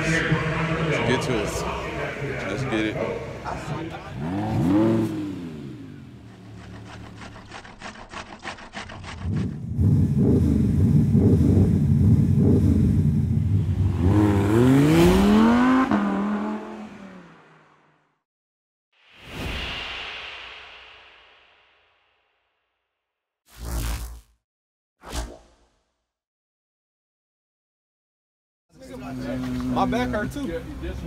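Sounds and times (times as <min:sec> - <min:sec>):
car engine revving: 0:00.0 - 0:07.4, 0:09.2 - 0:17.8.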